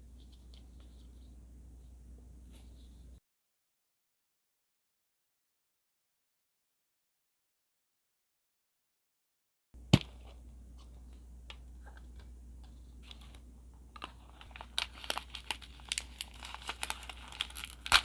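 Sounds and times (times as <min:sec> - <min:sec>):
plastic wrapping crinkling and tearing: 0:14.0 - 0:18.0.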